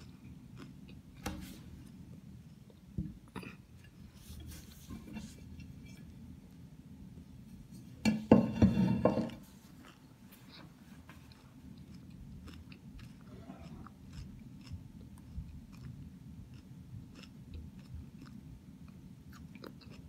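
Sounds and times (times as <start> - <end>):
person chewing lettuce: 0.0 - 1.2, 9.5 - 20.0.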